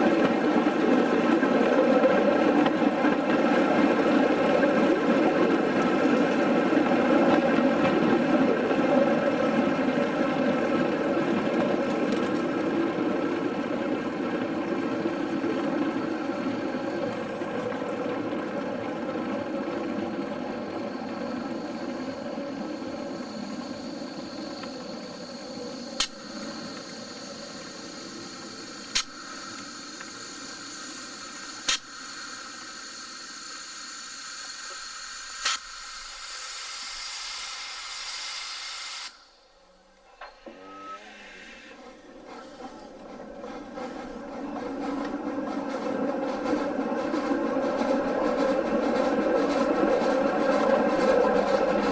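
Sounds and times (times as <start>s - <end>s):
locomotive engine drone: 0.0s - 31.7s, 39.8s - 51.9s
hiss: 20.6s - 39.8s, 40.4s - 51.9s.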